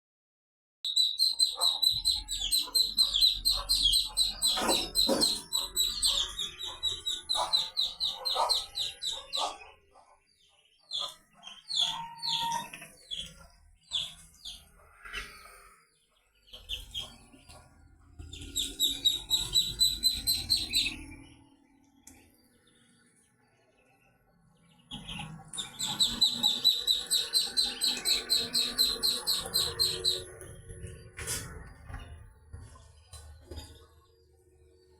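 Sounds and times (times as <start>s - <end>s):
ducklings peeping: 0.9s - 15.8s, 16.4s - 21.4s, 24.6s - 30.5s.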